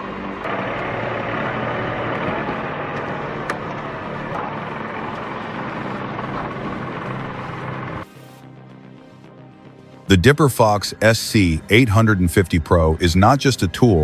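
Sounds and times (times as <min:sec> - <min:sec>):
excavator engine and hydraulics: 0:00.0 - 0:08.1.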